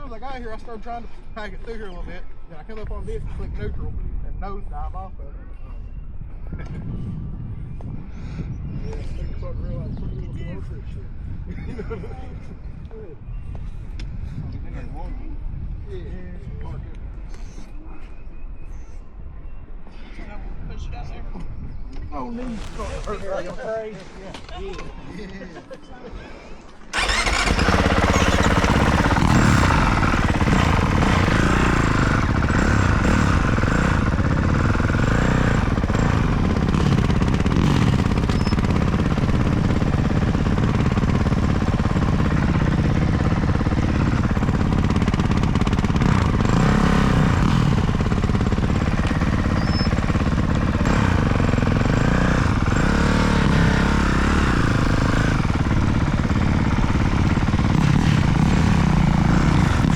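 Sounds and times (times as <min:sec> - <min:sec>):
dirt bike engine revving: 0:26.9 - 0:59.9.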